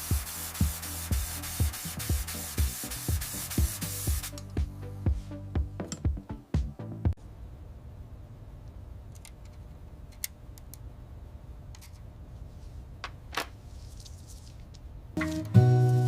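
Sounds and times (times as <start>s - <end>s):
music: 0.0s - 7.2s, 15.2s - 16.0s
low steady hum: 7.2s - 15.2s.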